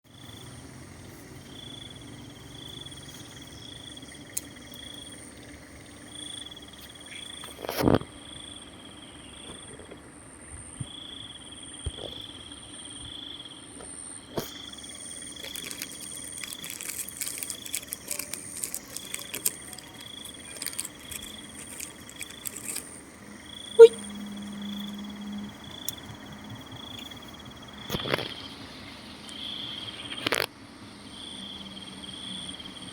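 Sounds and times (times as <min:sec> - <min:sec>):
dog crunching biscuits: 0:14.4 - 0:23.1.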